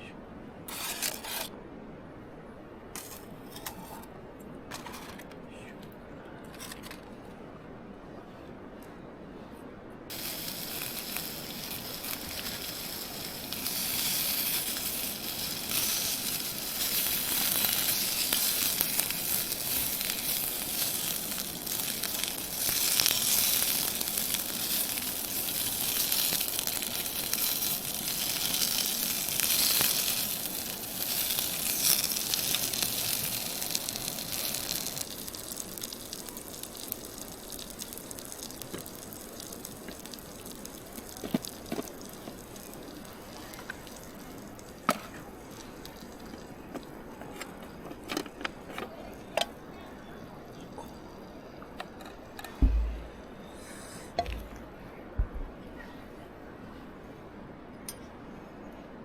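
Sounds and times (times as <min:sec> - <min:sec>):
food sizzling in frying pan: 0:10.1 - 0:46.5.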